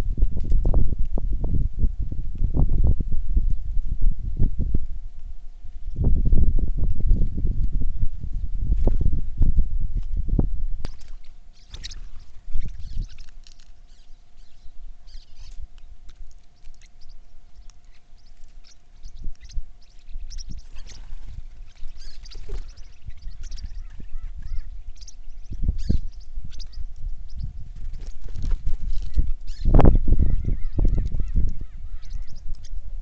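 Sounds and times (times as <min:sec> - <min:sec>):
faint steady hum: 0:00.0 - 0:33.0
birds chirping: 0:10.9 - 0:32.9.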